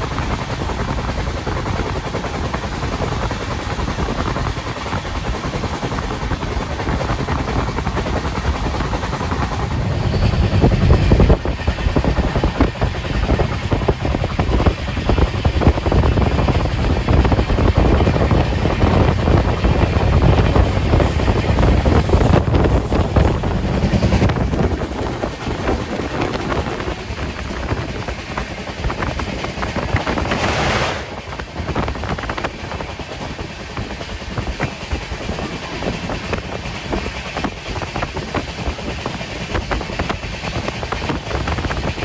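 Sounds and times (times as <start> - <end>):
train wind and wheels rushing: 0.0 - 42.0
wind buffeting microphone: 0.0 - 42.0.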